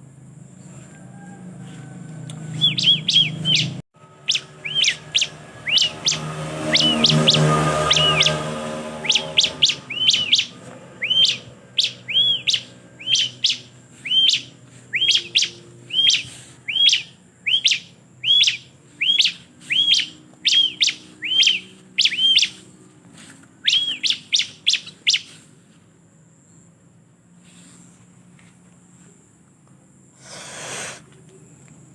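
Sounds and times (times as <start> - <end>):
bird sharp high chirps: 2.4 - 22.7, 23.6 - 25.5.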